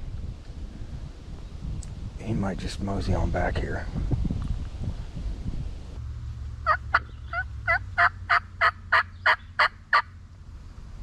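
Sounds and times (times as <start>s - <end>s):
turkey call yelps: 6.6s - 10.1s.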